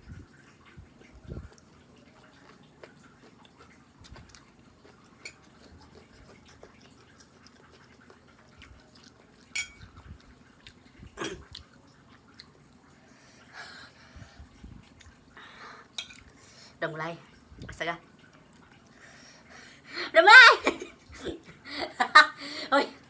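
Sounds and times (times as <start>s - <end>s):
person chewing noodles: 0.2s - 16.6s.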